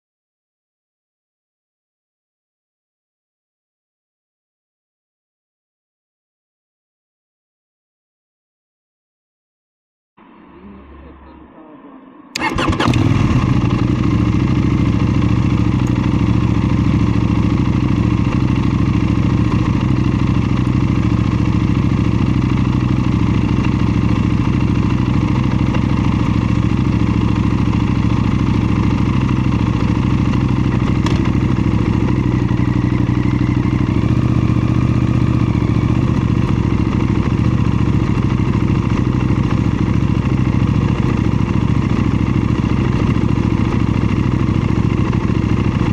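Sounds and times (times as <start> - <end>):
motorcycle engine idling: 12.4 - 45.9.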